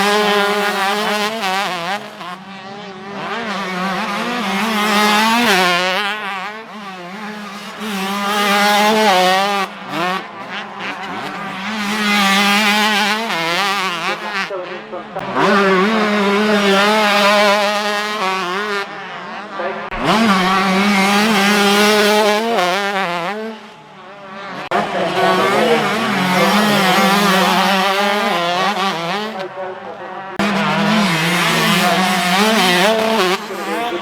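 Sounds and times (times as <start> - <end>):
motocross bikes revving: 0.0 - 34.0.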